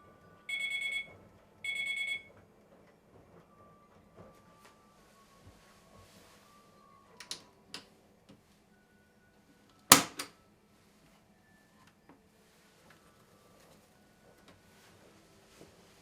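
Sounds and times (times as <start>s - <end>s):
sharp clicks and knocks: 9.9s - 10.3s.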